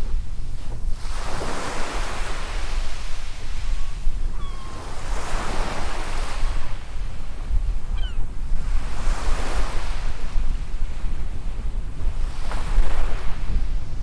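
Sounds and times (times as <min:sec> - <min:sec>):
wind rumble on microphone: 0:00.0 - 0:14.0
faint chirp: 0:03.8 - 0:04.9.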